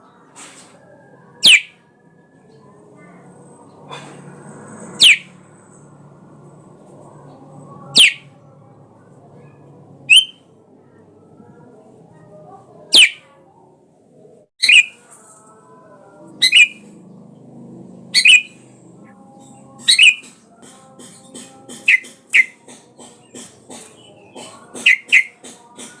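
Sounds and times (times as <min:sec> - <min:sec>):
bulbul sharp calls: 0:01.4 - 0:01.8, 0:05.0 - 0:05.3, 0:07.9 - 0:08.3, 0:10.1 - 0:10.4, 0:12.9 - 0:13.3, 0:14.6 - 0:15.0, 0:16.4 - 0:16.9, 0:18.2 - 0:18.6, 0:19.8 - 0:20.4, 0:21.0 - 0:23.4, 0:24.0 - 0:25.9.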